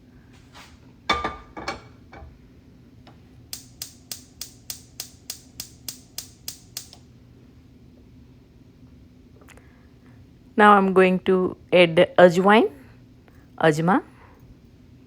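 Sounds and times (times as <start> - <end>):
metal utensils clinking: 1.1 - 2.3.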